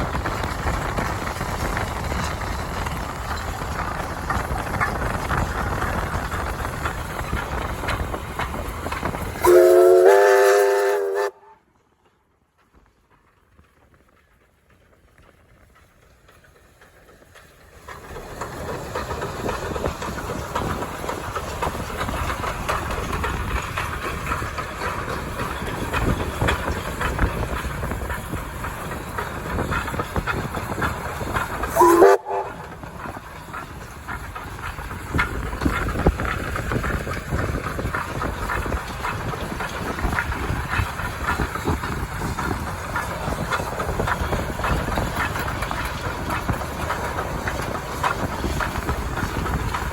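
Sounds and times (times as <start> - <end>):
train wheels clattering on rails: 0.0 - 49.9
steam locomotive whistle: 9.4 - 11.6, 31.7 - 32.7.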